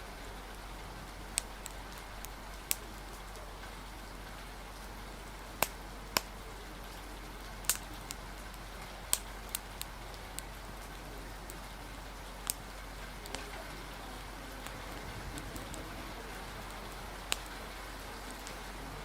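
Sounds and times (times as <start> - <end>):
rain hiss: 0.0 - 19.0
sharp pops and clicks: 1.4 - 3.4, 5.6 - 11.6, 12.3 - 13.6, 16.6 - 17.6.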